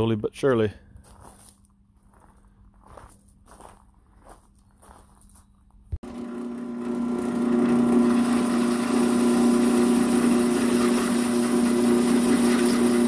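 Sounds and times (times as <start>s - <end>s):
power tool cutting sheet metal: 6.0s - 13.0s.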